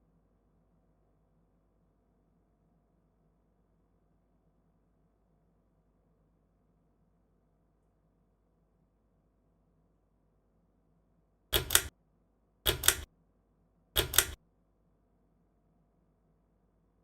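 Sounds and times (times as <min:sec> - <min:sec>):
pull-chain switch double clicks: 0:11.6 - 0:11.9, 0:12.7 - 0:13.1, 0:14.0 - 0:14.4.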